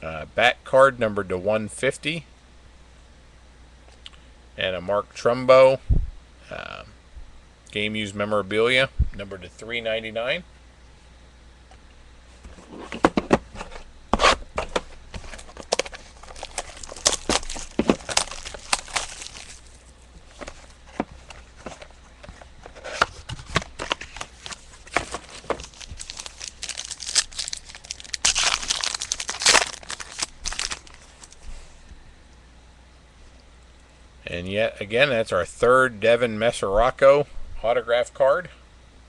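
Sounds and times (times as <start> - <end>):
crackly handling noises and clicks: 10.8 - 34.0
plastic wrappers tearing and crinkling: 15.2 - 19.9, 22.9 - 31.4.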